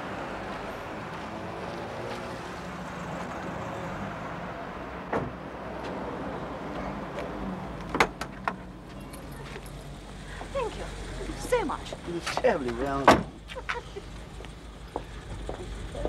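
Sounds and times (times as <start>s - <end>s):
car engine running: 7.7s - 16.0s.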